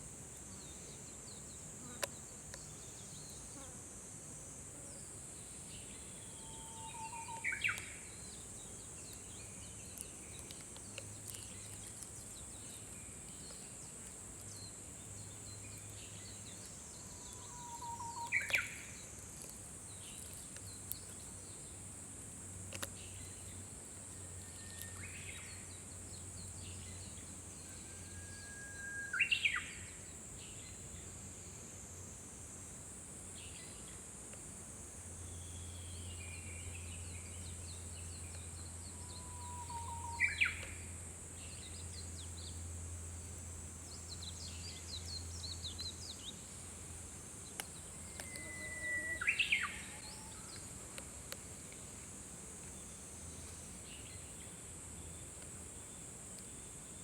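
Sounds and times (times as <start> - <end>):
high insect drone: 0.0 - 57.0
warbler singing whistled song: 14.5 - 19.0, 24.3 - 30.8, 35.2 - 42.7, 47.5 - 50.7
small bird chirps: 15.3 - 19.0, 47.5 - 50.6.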